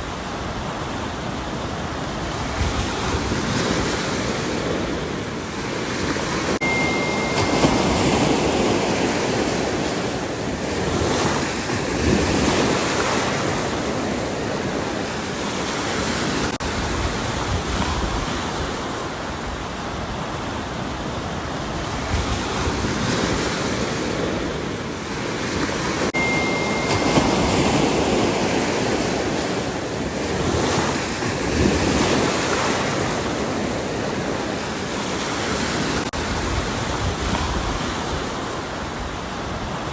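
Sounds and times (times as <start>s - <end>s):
ocean waves breaking: 0.0s - 39.9s
faint high whistle: 6.6s - 8.4s, 26.2s - 28.0s.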